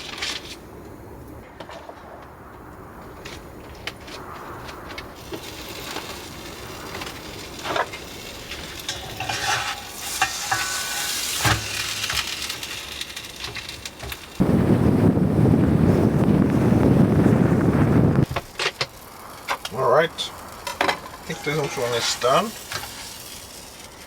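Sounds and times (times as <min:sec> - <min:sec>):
quesadilla sizzling in a pan: 0:05.1 - 0:15.0, 0:15.9 - 0:24.0.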